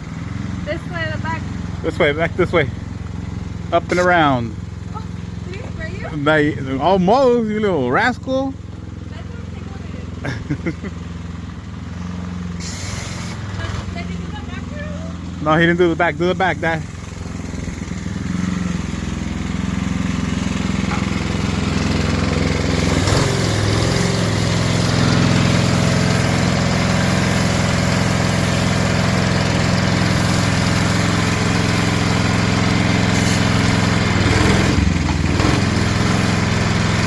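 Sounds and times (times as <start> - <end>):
pressure washer engine running: 0.0 - 37.0
high-pressure spray hissing: 12.6 - 13.6, 20.4 - 34.6.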